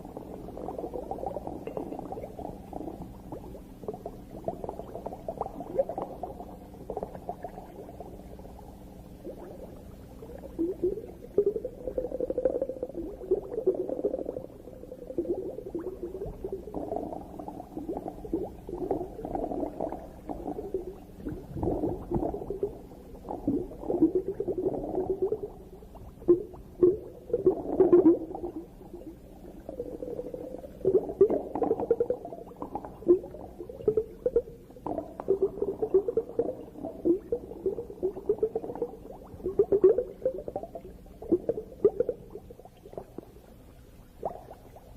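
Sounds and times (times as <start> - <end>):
underwater bubbling and gurgling: 0.0 - 44.9.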